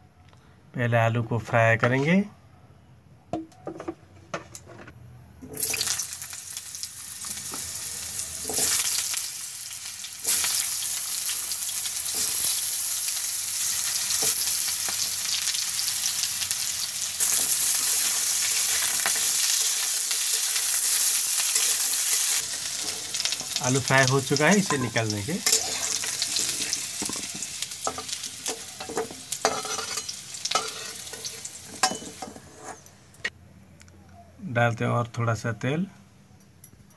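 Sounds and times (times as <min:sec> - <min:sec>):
potatoes sizzling in oil: 0:05.6 - 0:32.6
spatula scraping and stirring: 0:17.2 - 0:32.9.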